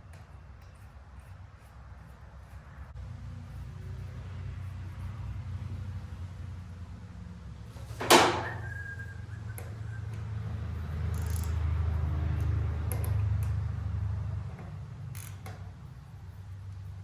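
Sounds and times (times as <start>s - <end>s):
metallic wrench clicks: 11.0s - 13.6s, 15.0s - 15.7s.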